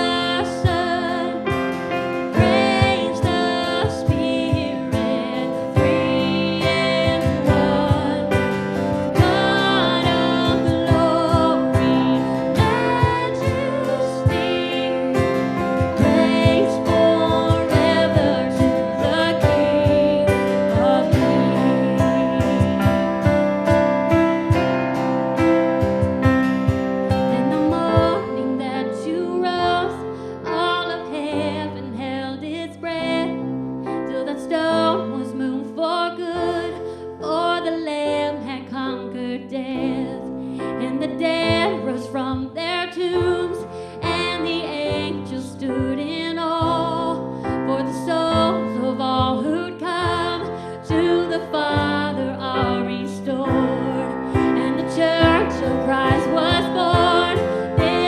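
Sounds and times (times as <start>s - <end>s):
worship band music: 0.0s - 38.5s, 39.6s - 58.0s.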